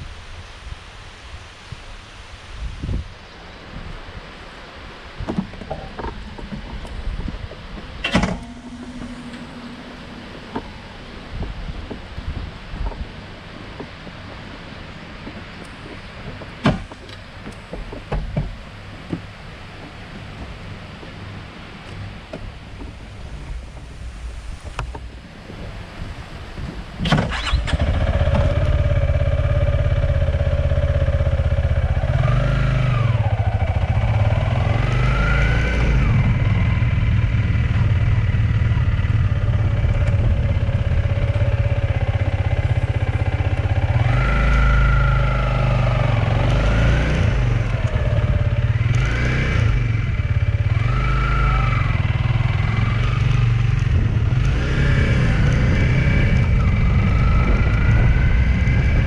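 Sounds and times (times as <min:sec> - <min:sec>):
motorcycle engine revving: 0:05.7 - 0:12.0, 0:27.0 - 0:59.0.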